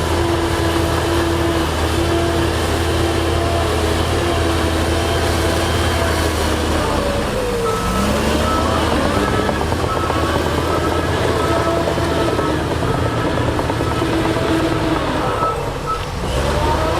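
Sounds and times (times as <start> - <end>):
diesel engine running: 0.0 - 16.9
reversing alarm beeping: 6.7 - 16.9.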